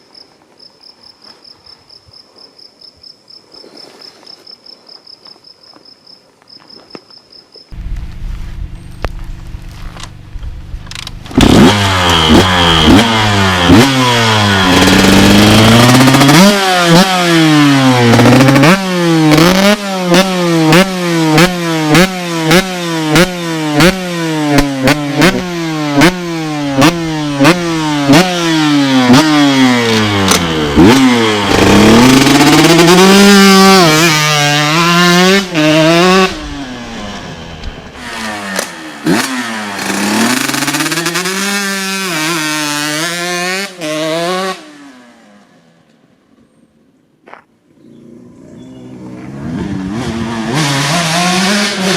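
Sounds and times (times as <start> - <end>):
motocross engine revving: 8.8 - 45.3, 47.9 - 51.9.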